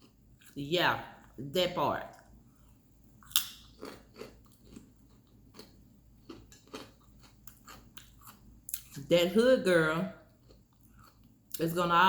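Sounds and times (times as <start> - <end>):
person chewing crunchy food: 2.4 - 9.0, 10.2 - 11.6.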